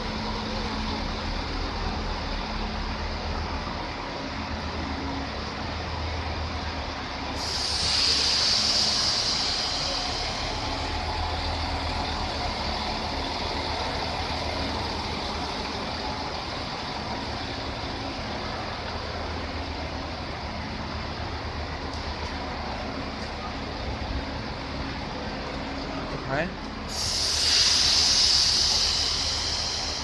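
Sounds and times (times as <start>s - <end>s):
train pulling into station: 0.0s - 30.0s
loud high hiss: 7.3s - 14.8s, 26.9s - 30.0s.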